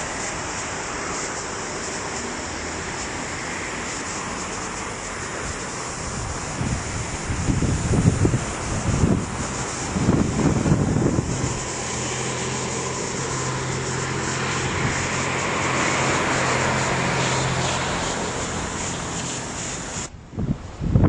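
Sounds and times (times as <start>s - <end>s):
low engine drone: 0.0s - 20.3s
wind buffeting microphone: 5.2s - 21.0s.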